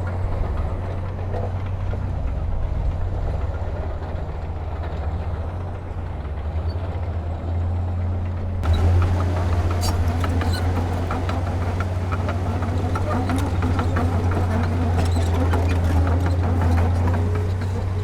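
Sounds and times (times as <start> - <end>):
heavy diesel machinery drone: 8.6 - 18.0
metallic clanks and rattles: 8.6 - 18.0.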